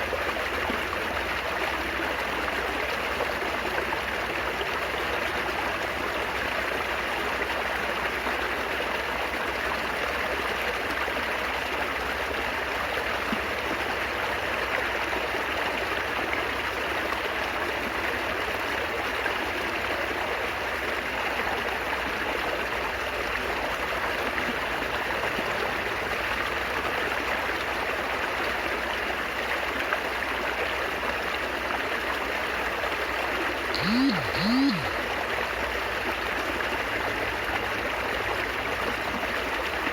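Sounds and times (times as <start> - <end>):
water trickling and babbling: 0.0 - 33.8, 34.9 - 39.9
short pitched sounds: 33.8 - 35.0.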